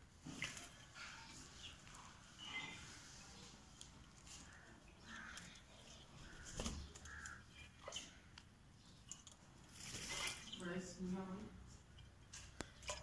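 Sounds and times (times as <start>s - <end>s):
faint bird calls: 4.2s - 9.0s.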